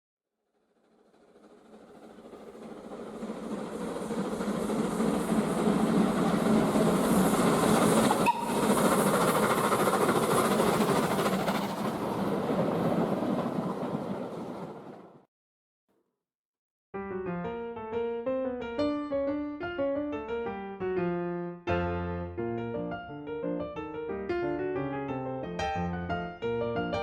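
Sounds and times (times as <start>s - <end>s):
train rumbling and clattering on rails: 0.7s - 15.3s.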